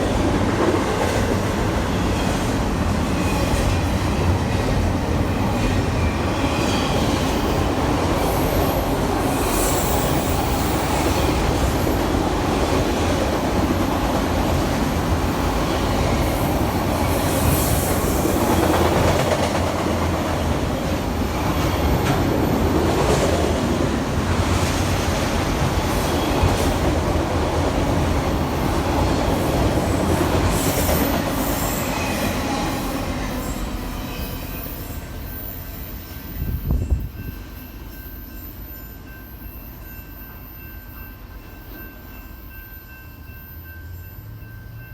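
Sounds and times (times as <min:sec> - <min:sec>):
train rumbling past: 0:00.0 - 0:44.9
high wheel squeals: 0:08.3 - 0:11.2.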